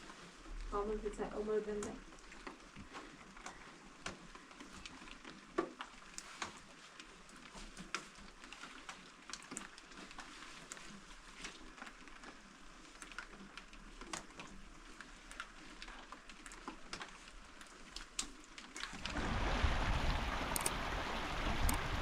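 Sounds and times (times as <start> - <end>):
rain drips and taps: 0.0 - 22.0
heavy rain rushing: 19.0 - 22.0.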